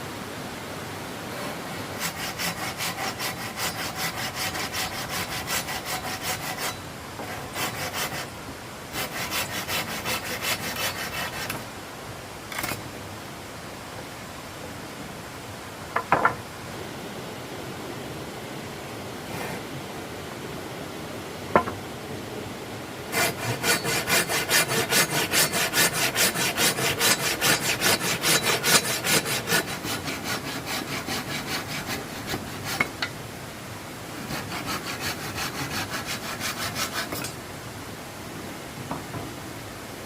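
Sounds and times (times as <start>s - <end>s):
hand saw cutting wood: 2.0s - 8.3s, 8.9s - 11.6s, 23.1s - 33.1s, 34.2s - 37.4s.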